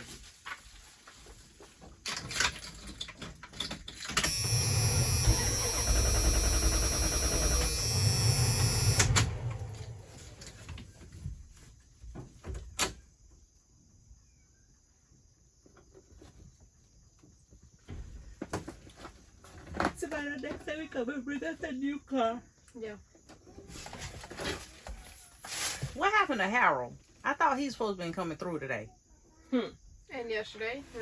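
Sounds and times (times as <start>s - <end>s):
car engine cranking: 4.2s - 10.6s.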